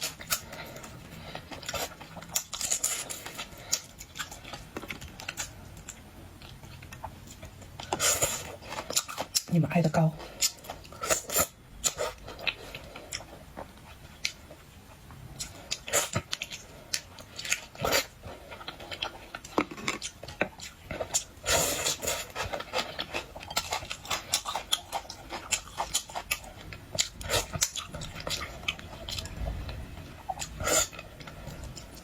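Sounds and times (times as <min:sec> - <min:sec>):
chewing and wet mouth sounds: 0:00.0 - 0:32.0.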